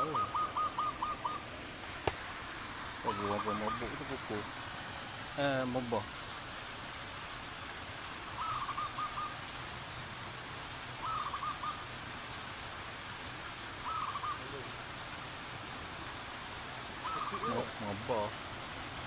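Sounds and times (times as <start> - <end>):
dove cooing: 0.0 - 1.5, 3.0 - 4.5, 8.4 - 9.4, 11.0 - 11.9, 13.8 - 14.8, 16.9 - 18.4.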